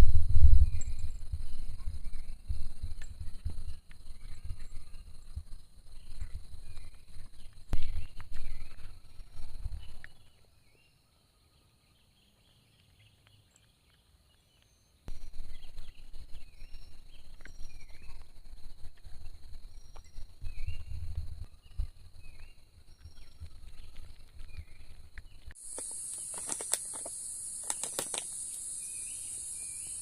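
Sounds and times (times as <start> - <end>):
birds chirping: 0.6 - 30.0
high insect drone: 25.6 - 30.0.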